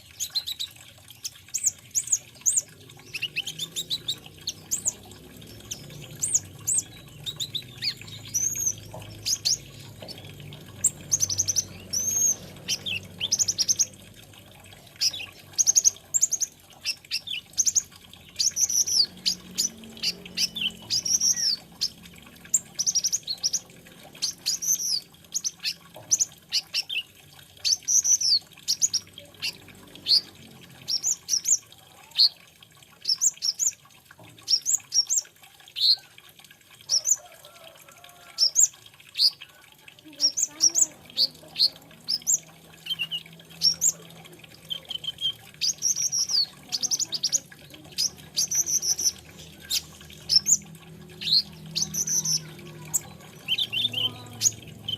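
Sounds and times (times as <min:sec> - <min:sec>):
sunbird singing high chirps: 0:00.2 - 0:14.1, 0:15.0 - 0:27.1, 0:40.1 - 0:50.6.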